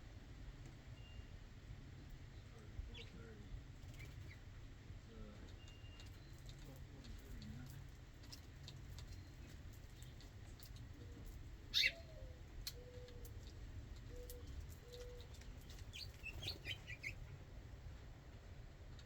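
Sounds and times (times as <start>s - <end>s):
small bird chirps: 9.0s - 17.3s
dove cooing: 11.0s - 17.2s.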